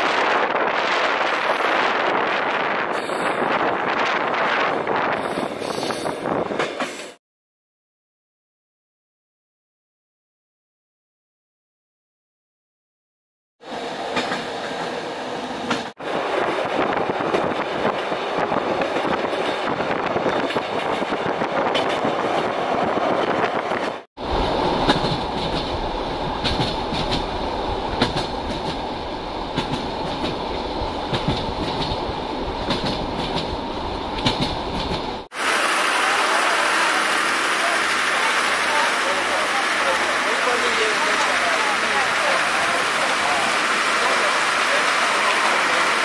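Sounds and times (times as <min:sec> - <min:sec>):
train rumbling on rails: 0:00.0 - 0:07.2, 0:13.6 - 0:46.0
wheels clicking over rail joints: 0:23.2 - 0:35.3.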